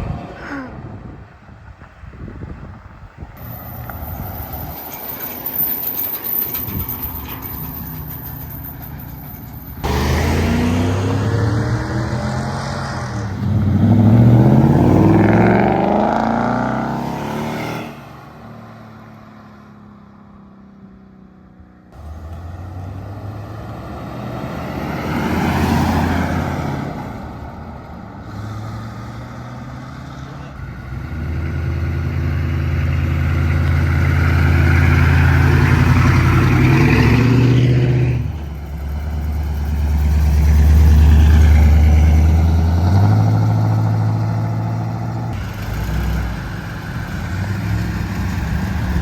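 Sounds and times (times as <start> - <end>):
car engines revving and accelerating: 9.7 - 20.6, 21.9 - 49.0.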